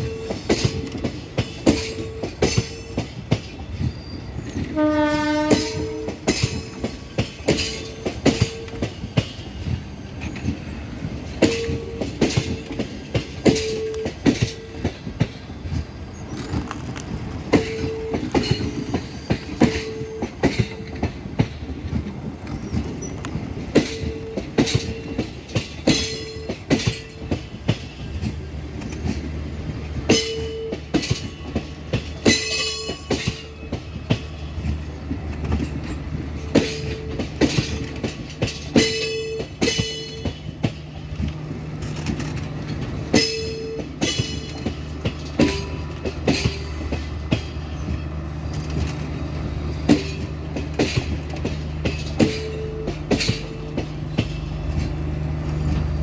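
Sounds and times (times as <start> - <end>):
train rumble: 0.0 - 56.0
train wheels clacking over rail joints: 0.0 - 56.0
metallic wheel squeals: 1.7 - 10.8, 15.6 - 21.0, 22.5 - 25.3.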